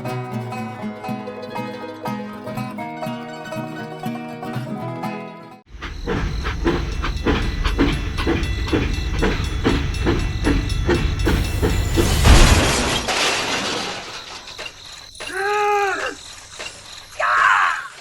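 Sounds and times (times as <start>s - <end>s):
small machine chugging: 5.7s - 13.1s, 14.0s - 18.0s.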